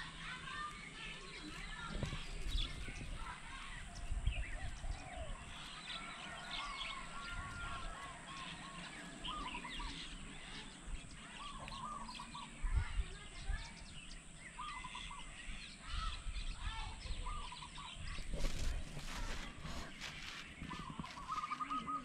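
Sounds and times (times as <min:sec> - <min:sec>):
birds calling and chirping: 0:00.0 - 0:22.0.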